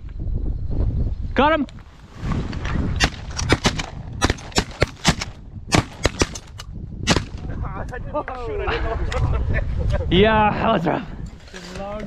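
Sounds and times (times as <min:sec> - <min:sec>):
wind rumbling on microphone: 0:00.0 - 0:12.0
shotgun blasts: 0:03.0 - 0:07.5.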